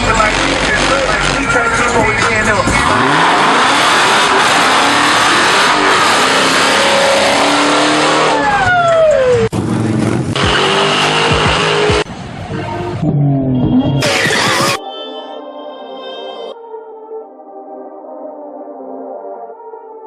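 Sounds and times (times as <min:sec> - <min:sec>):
car engine revving: 0:00.0 - 0:08.7, 0:09.3 - 0:14.8
tires spinning and squealing: 0:00.0 - 0:14.8
vehicle noise: 0:00.0 - 0:14.8.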